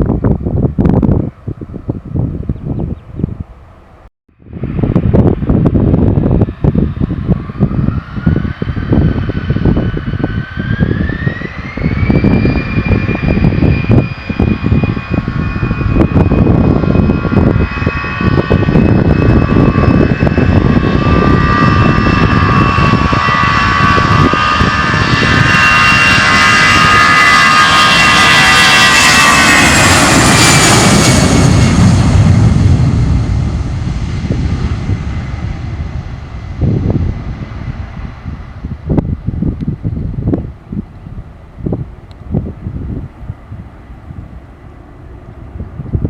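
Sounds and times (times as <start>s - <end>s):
jet engines spooling up: 3.2s - 46.0s.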